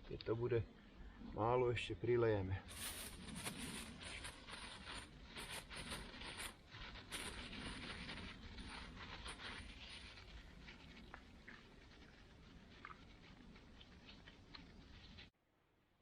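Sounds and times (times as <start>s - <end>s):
plastic bag crinkling: 2.7s - 15.3s.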